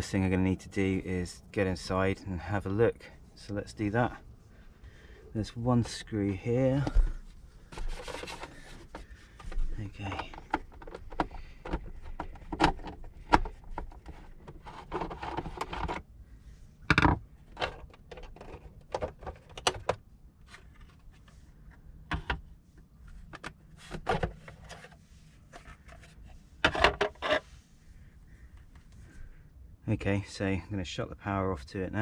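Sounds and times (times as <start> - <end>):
plastic clatter: 6.8 - 16.0, 16.9 - 21.2, 23.2 - 27.4
plastic casing clicks and knocks: 8.2 - 14.1.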